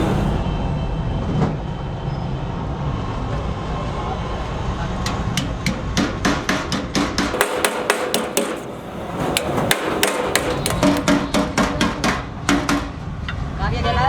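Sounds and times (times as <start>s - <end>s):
hammer blows on metal: 7.3s - 13.0s.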